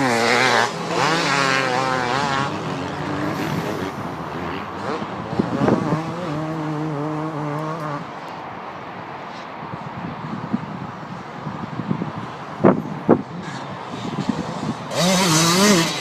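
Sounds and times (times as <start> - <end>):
motocross bike engines revving: 0.0 - 8.3, 12.1 - 16.0.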